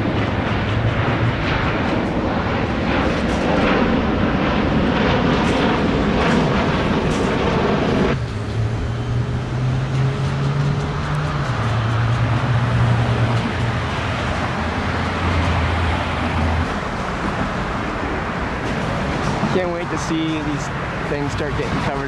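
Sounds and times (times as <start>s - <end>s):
jet airliner roaring overhead: 0.0s - 22.0s.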